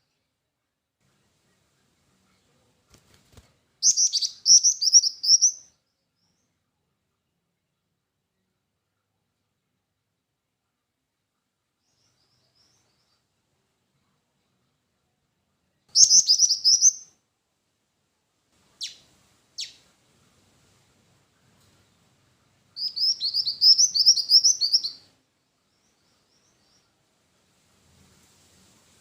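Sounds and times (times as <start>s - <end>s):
bird chattering trill: 22.8s - 25.0s.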